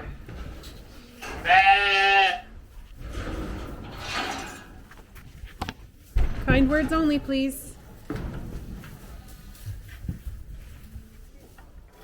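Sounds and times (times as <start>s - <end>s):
sheep bleating: 1.2s - 2.5s.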